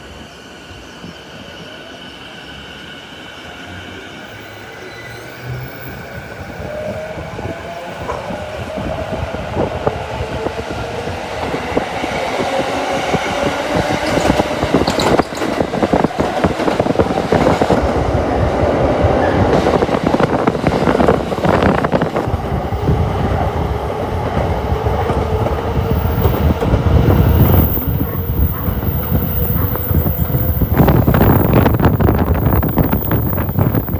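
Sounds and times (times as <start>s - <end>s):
high-speed train on rails: 0.0s - 33.9s.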